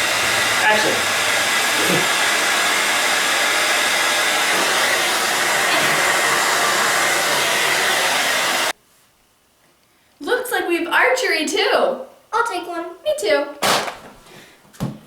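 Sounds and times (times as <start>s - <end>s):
loud steady hiss: 0.0s - 8.8s.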